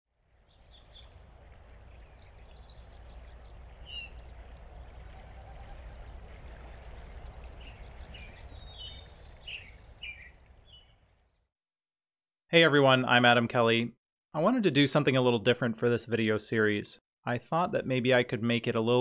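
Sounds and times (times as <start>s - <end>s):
low outdoor rumble: 0.4s - 9.5s
bird chirps: 0.4s - 11.5s
downward-slurred bird calls: 0.5s - 11.0s.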